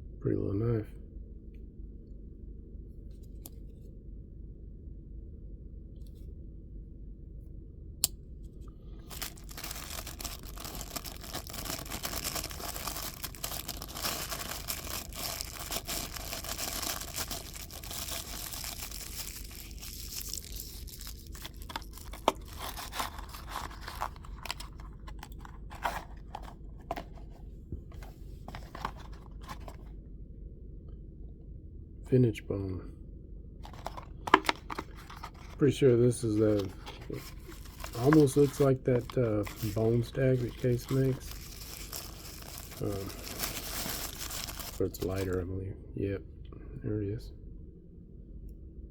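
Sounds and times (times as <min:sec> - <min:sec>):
packaging tearing and crinkling: 0:09.0 - 0:27.2, 0:28.5 - 0:29.8, 0:33.7 - 0:35.6, 0:36.3 - 0:45.4.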